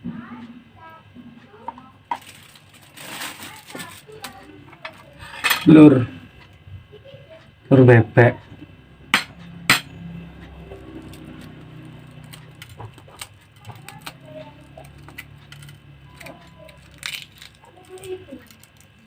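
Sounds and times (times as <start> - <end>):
utensil clicks and taps: 10.4 - 19.0.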